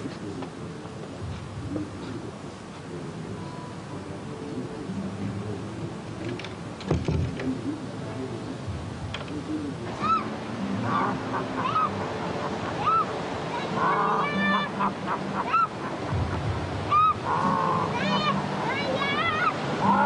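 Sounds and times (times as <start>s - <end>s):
birds honking calls: 9.7s - 20.0s.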